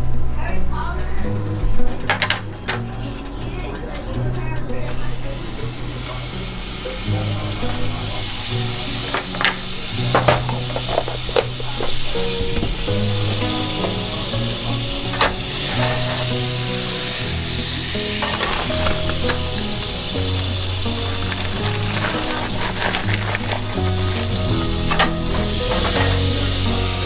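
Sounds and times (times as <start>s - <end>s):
food sizzling in a frying pan: 5.0s - 27.0s.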